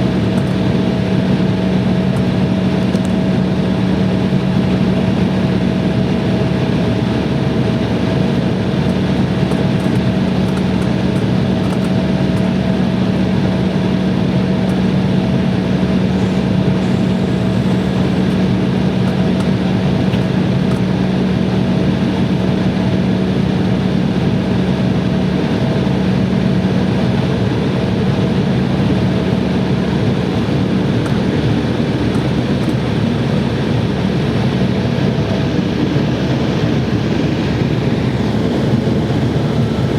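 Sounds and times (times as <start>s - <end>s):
jet engines in cabin: 0.0s - 39.9s.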